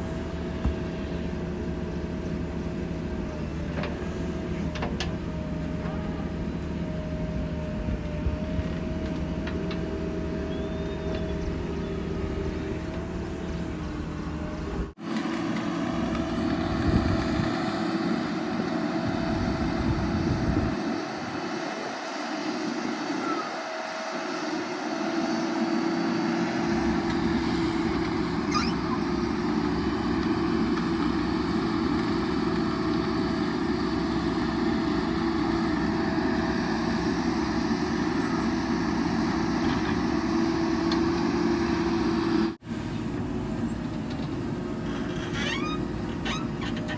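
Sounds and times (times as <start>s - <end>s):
heavy diesel engine running: 0.0s - 45.2s.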